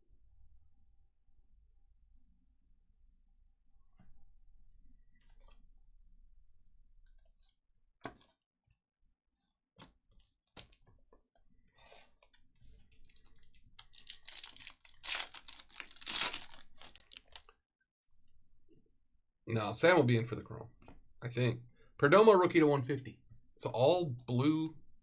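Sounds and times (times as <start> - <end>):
foil wrapper torn and crinkled: 13.1 - 17.5.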